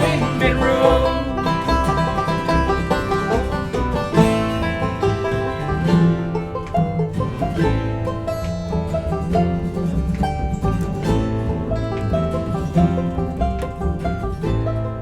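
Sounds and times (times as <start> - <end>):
bass pulse: 0.0 - 6.2
banjo picking: 0.0 - 15.0
guitar: 0.0 - 15.0.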